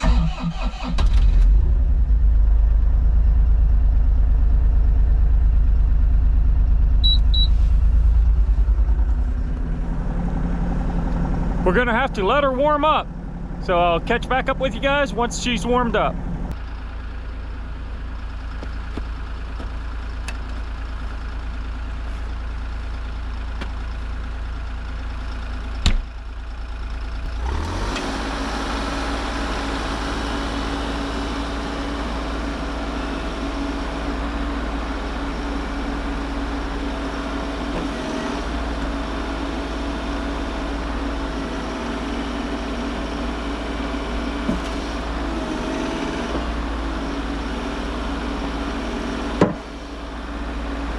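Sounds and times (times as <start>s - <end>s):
diesel engine idling: 0.0s - 50.9s.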